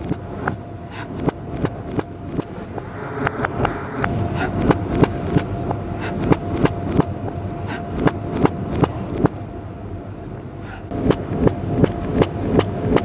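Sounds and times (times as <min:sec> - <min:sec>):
knife chopping on cutting board: 0:00.9 - 0:01.8, 0:04.4 - 0:07.1, 0:07.7 - 0:09.4.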